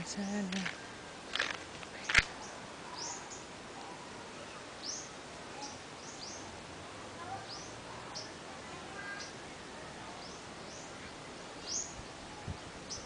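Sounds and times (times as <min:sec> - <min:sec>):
steady background hiss: 0:00.0 - 0:13.0
bird chirping: 0:01.9 - 0:03.5, 0:10.2 - 0:12.2.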